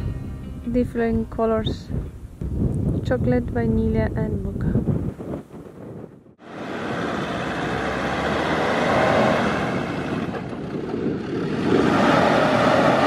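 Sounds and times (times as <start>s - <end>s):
truck engine revving hard: 6.4s - 13.0s.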